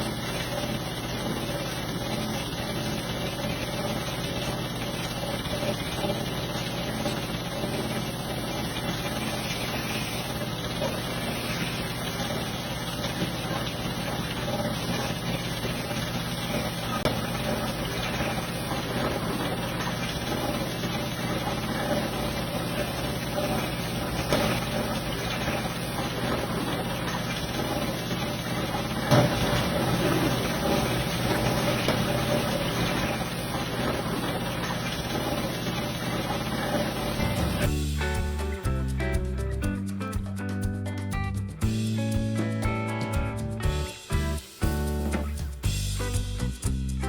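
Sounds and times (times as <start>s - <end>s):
pressure washer motor humming: 0.0s - 39.5s
water spray hissing: 4.9s - 38.4s.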